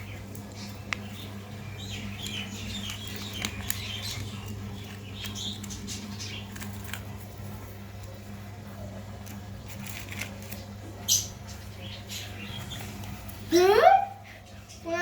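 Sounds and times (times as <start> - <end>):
steady low hum: 0.0 - 15.0
small clicks and pattering: 0.1 - 8.2, 9.2 - 10.7.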